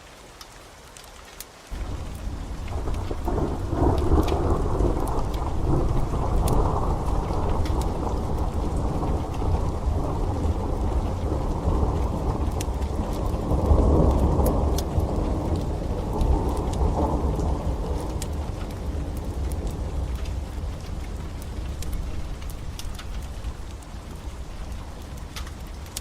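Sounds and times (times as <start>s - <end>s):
steady rain: 0.0s - 26.0s
wood fire crackling: 0.4s - 26.0s
rolling thunder rumble: 1.7s - 26.0s.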